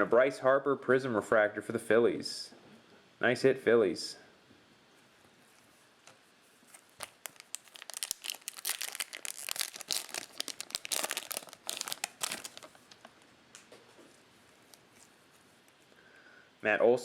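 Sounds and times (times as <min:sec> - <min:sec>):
cellophane wrapper crinkling: 0:06.6 - 0:13.8, 0:14.4 - 0:15.9.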